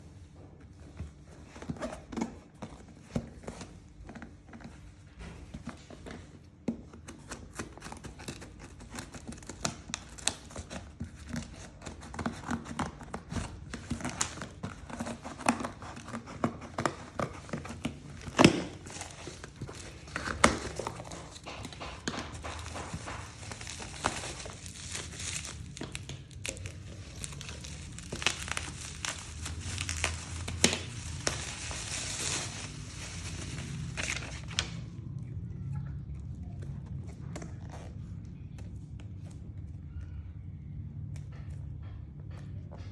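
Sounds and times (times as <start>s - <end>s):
packaging crinkling and tearing: 7.0s - 35.0s.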